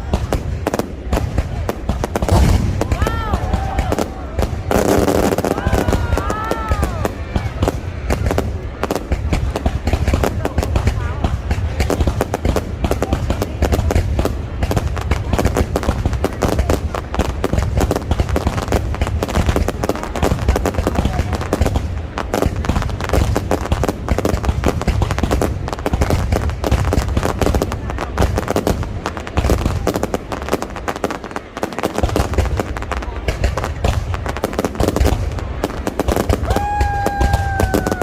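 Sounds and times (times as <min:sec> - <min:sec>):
fireworks bangs and crackles: 0:00.0 - 0:38.0.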